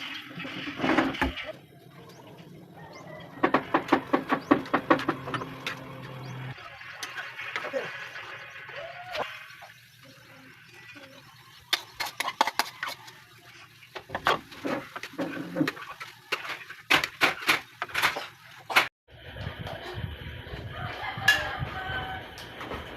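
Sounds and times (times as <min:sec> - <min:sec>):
kitchen utensils knocking and clattering: 0:03.2 - 0:06.3, 0:11.7 - 0:13.2, 0:13.8 - 0:18.9.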